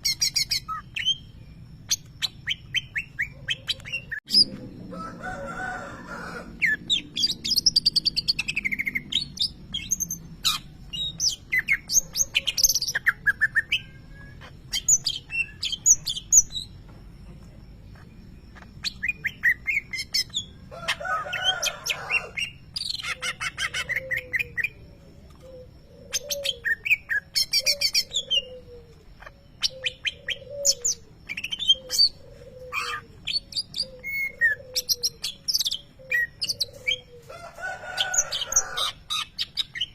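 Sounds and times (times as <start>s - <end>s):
bird singing chirps and trills: 0.0s - 4.8s, 6.4s - 39.9s
harsh bird calls: 17.8s - 39.9s.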